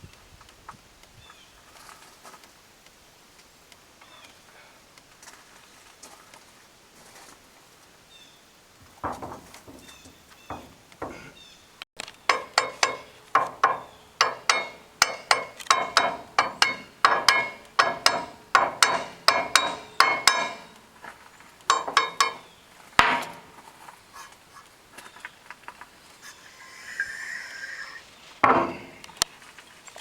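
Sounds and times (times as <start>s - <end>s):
hammer striking steel: 9.0s - 11.4s, 12.3s - 20.9s, 21.7s - 23.6s, 28.4s - 29.2s.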